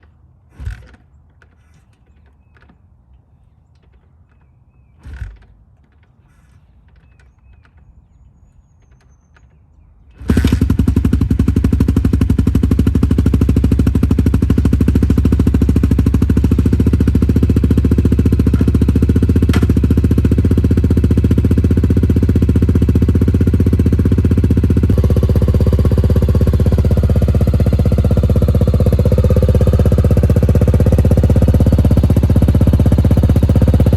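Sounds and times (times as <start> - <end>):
motorcycle engine idling: 10.2 - 33.9.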